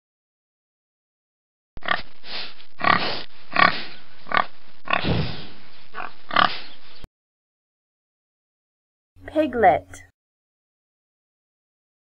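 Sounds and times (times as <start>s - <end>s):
pig grunting: 2.8s - 5.4s, 6.0s - 6.7s.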